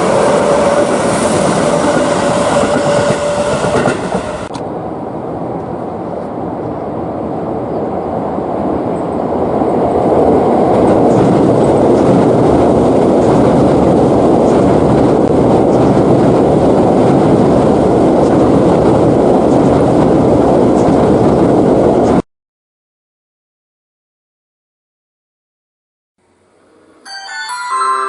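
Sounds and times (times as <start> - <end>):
train rumbling along track: 0.0 - 22.2.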